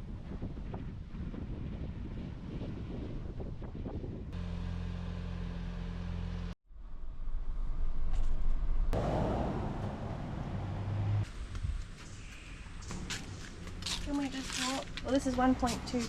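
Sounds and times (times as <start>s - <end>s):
road and wind noise: 0.0s - 16.0s
vehicle engine humming: 4.4s - 6.6s, 8.9s - 11.9s, 12.6s - 16.0s.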